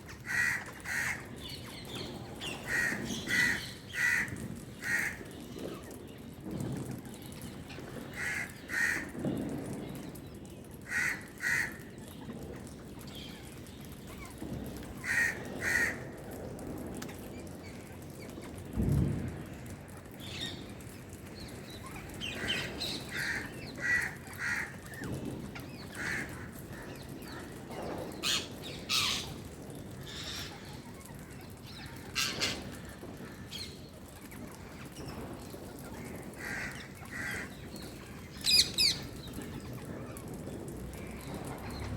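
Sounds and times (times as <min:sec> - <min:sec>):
birds cawing: 0:00.1 - 0:01.6, 0:02.4 - 0:05.4, 0:08.1 - 0:09.2, 0:10.8 - 0:12.0, 0:15.0 - 0:16.2, 0:22.2 - 0:25.0, 0:25.8 - 0:27.6, 0:28.2 - 0:30.6, 0:36.1 - 0:39.2.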